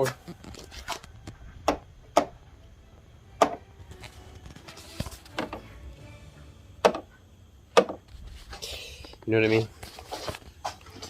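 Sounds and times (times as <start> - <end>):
sharp knocks: 6.8 - 7.1, 7.8 - 8.0.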